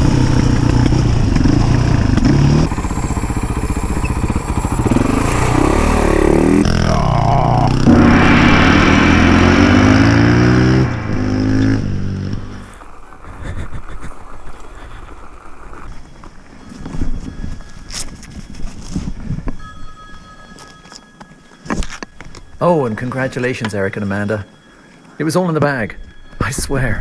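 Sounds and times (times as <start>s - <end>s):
dirt bike engine revving: 0.0s - 12.7s.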